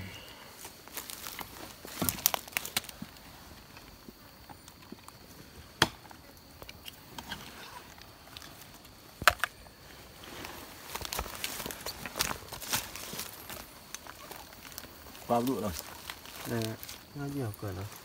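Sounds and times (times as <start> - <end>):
woody snaps and cracks: 1.3 - 3.0.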